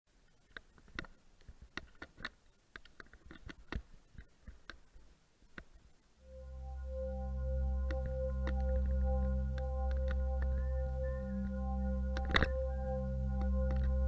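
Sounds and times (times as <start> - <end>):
faint clicks and taps: 0.2 - 5.9, 13.4 - 14.0
ambient music bell-like chord: 6.2 - 14.0.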